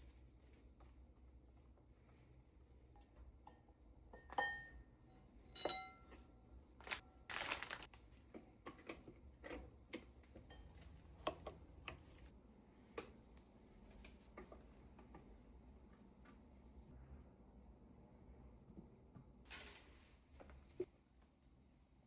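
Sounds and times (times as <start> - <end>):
dishes clinking: 3.5 - 4.8, 5.5 - 6.2.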